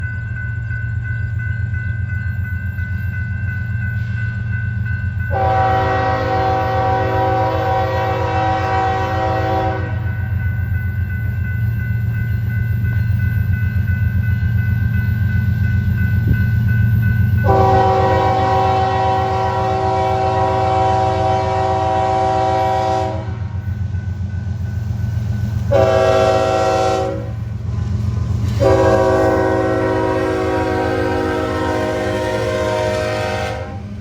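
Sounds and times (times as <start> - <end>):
diesel locomotives rumbling: 0.0 - 34.0
multi-chime air horn blasts: 5.3 - 10.2, 17.4 - 23.5, 25.7 - 27.4, 28.5 - 33.9.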